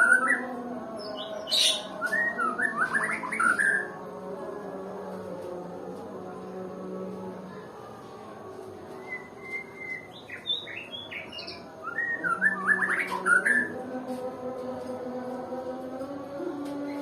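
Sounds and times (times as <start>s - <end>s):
songbird singing: 0.0s - 4.1s, 8.9s - 14.0s.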